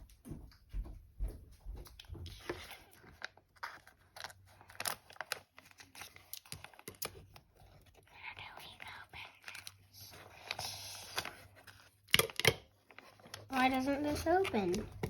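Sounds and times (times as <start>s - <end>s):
plastic packaging crinkling: 2.3s - 15.0s
plastic tearing: 2.5s - 7.8s.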